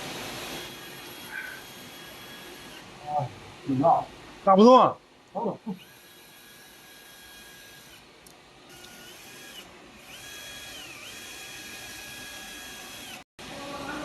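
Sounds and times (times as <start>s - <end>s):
electric drill motor whining: 0.2s - 2.9s, 5.8s - 8.1s, 8.7s - 13.3s.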